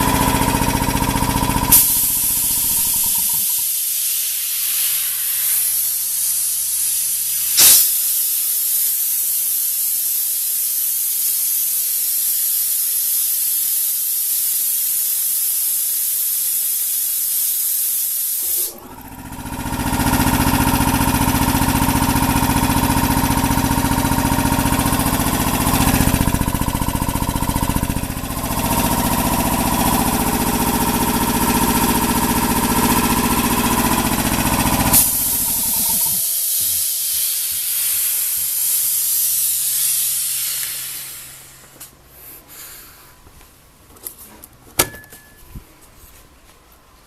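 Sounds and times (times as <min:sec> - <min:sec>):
air compressor pulsing: 0:00.0 - 0:12.8, 0:13.9 - 0:41.8
steady hiss: 0:01.7 - 0:18.5, 0:34.9 - 0:43.2
brief pop: 0:07.6 - 0:07.9.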